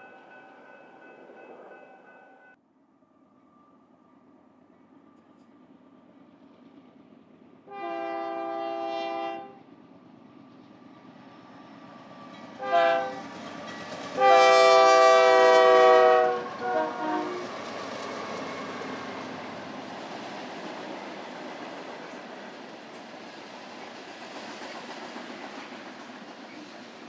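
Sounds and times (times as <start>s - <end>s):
train rumble: 0.0s - 2.6s, 4.3s - 27.0s
locomotive horn blasts: 7.7s - 9.6s, 12.6s - 13.3s, 14.2s - 17.5s.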